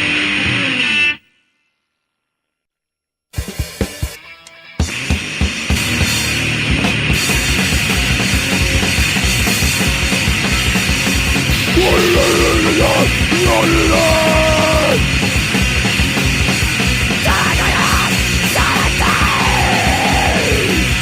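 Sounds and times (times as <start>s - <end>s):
distorted punk guitars: 0.0s - 1.2s, 3.4s - 21.0s
pounding drums: 11.7s - 15.8s.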